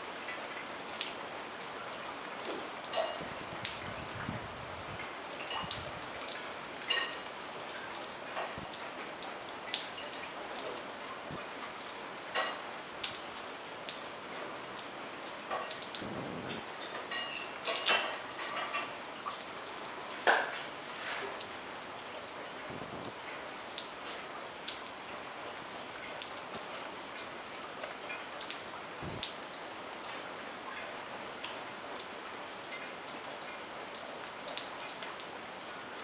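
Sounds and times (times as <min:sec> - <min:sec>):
raindrops tapping close by: 0:00.0 - 0:36.0
steady rain falling: 0:00.0 - 0:36.0
raindrop ringing ping: 0:02.9 - 0:03.4, 0:06.8 - 0:07.4, 0:12.3 - 0:12.8, 0:16.9 - 0:18.9.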